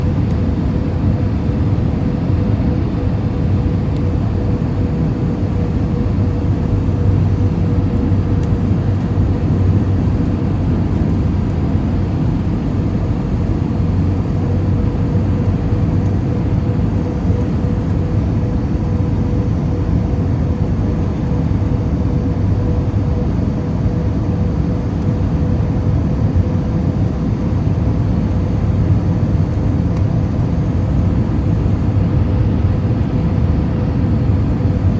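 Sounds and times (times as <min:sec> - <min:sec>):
aircraft cabin rumble: 0:00.0 - 0:34.9.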